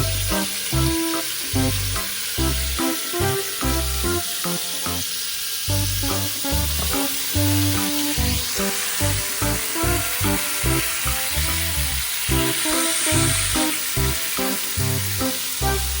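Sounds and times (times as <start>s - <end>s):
background music with steady beat: 0.0s - 16.0s
food sizzling in frying pan: 0.0s - 16.0s.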